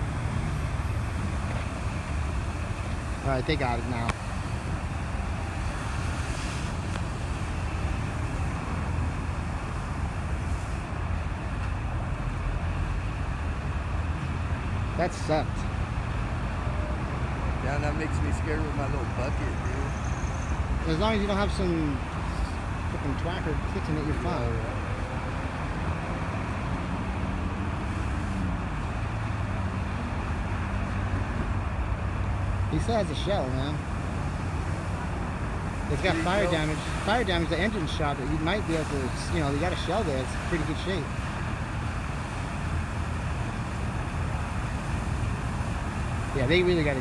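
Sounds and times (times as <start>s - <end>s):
low engine hum: 0.0s - 47.0s
road traffic rumble: 0.0s - 47.0s.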